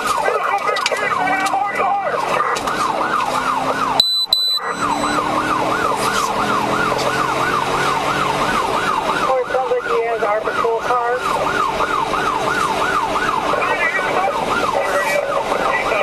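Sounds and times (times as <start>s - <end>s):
police siren yelping: 0.0s - 16.0s
short high beeps: 4.0s - 5.2s.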